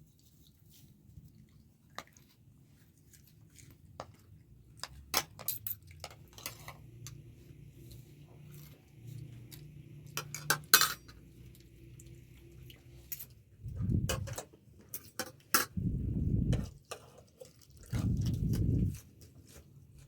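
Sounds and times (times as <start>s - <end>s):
dishes and utensils clinking: 10.1s - 11.2s
low rough sounds: 13.6s - 14.4s, 15.7s - 16.7s.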